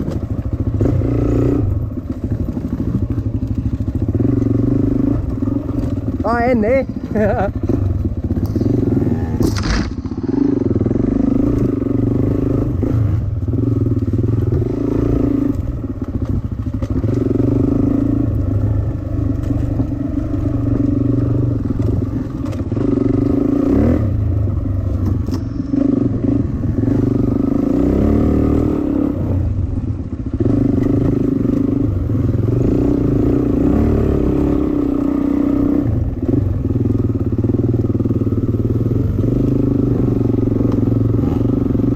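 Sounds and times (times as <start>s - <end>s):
dirt bike engine revving: 0.0s - 41.9s
sharp clack: 9.4s - 10.2s.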